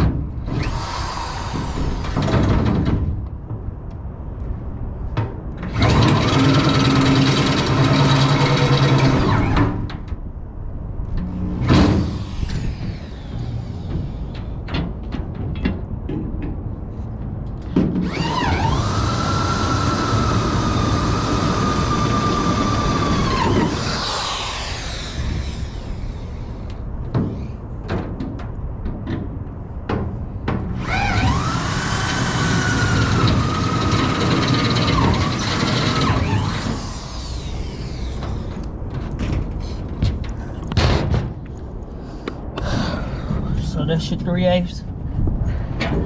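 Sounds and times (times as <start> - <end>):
power drill boring through metal: 0.5 - 2.3, 5.7 - 9.6, 18.0 - 26.5, 30.8 - 38.5.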